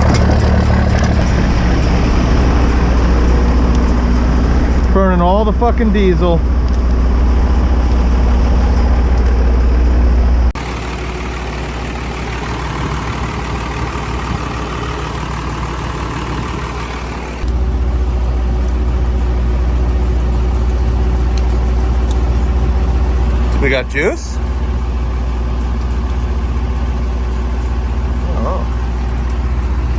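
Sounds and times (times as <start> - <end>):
diesel truck engine idling: 10.6 - 29.9.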